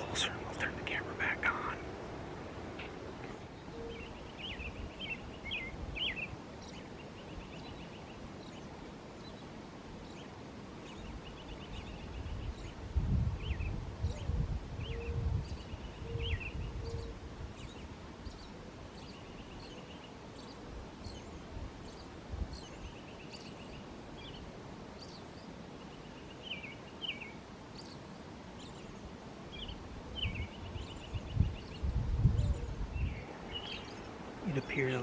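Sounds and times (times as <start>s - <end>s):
wind rumble on microphone: 0.0s - 6.7s, 10.9s - 18.5s, 20.8s - 23.0s, 29.5s - 34.5s
songbirds chirping and trilling: 0.0s - 35.0s.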